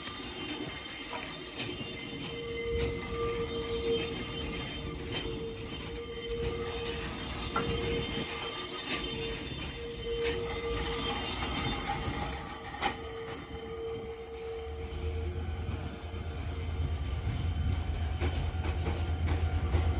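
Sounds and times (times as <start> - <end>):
train wheels squealing: 0.0 - 19.9.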